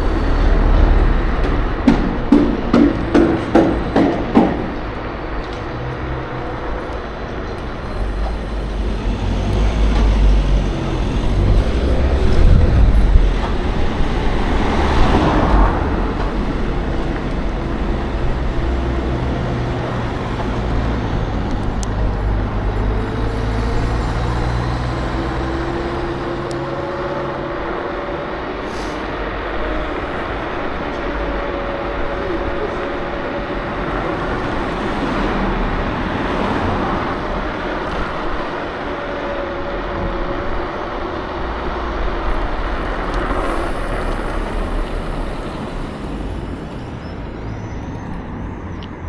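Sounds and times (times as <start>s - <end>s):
road noise from scooter: 0.0s - 49.0s
vehicle passing: 0.0s - 49.0s
wind rush: 6.6s - 25.2s.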